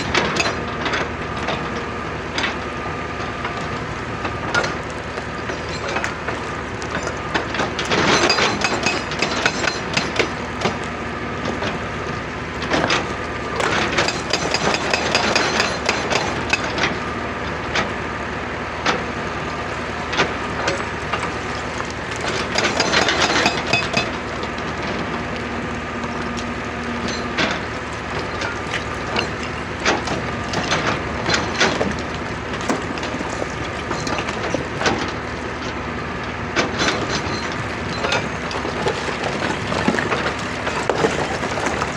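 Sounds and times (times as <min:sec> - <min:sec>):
excavator engine running: 0:00.0 - 0:41.9
rock clattering and cracking: 0:04.2 - 0:16.8, 0:19.5 - 0:24.2, 0:26.3 - 0:35.8, 0:36.6 - 0:41.9.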